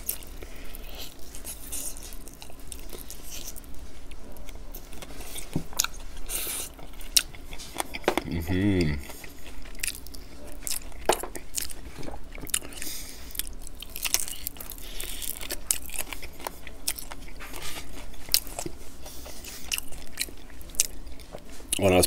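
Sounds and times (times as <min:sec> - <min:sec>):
biting and chewing fried chicken: 0:00.0 - 0:22.0.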